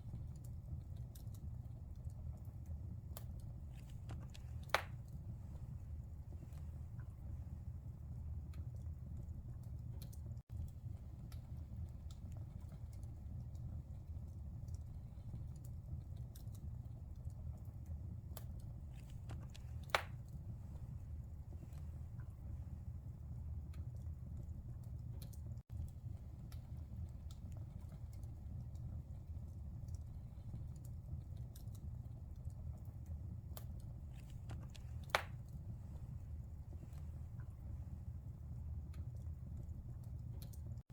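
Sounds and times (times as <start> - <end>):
fire crackling and popping: 0.0 - 40.9
loud sharp pop from fire: 4.6 - 5.0, 19.8 - 20.2, 35.0 - 35.4.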